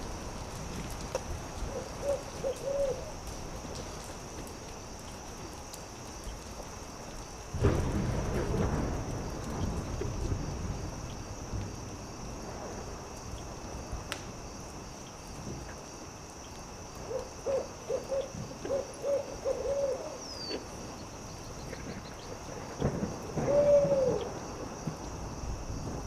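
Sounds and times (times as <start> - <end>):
campfire crackling and popping: 0.0 - 11.9, 12.5 - 17.1
owl hooting: 1.7 - 3.2, 17.1 - 20.6, 23.4 - 24.3.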